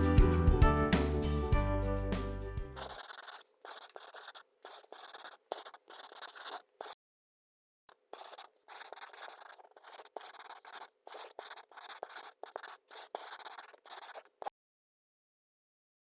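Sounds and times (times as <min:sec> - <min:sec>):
paper being folded and rubbed: 0:02.1 - 0:07.0, 0:08.1 - 0:14.5.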